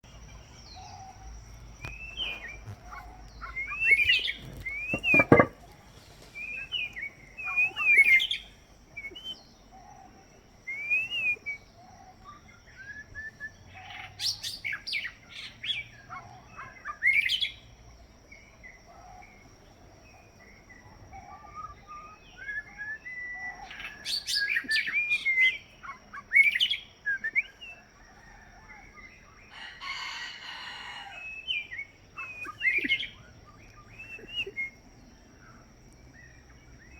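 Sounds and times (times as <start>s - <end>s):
bird singing whistles and trills: 6.4s - 9.9s, 10.7s - 12.0s, 12.6s - 15.1s, 21.4s - 27.9s, 31.3s - 35.6s.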